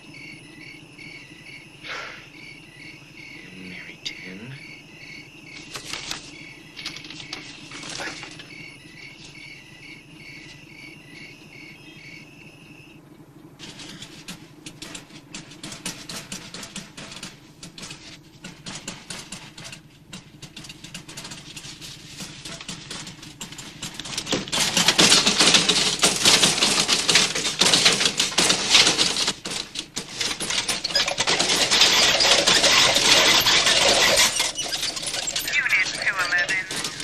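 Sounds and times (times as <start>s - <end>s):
rapid dense rattling and clicking: 5.5s - 8.5s, 13.6s - 37.0s.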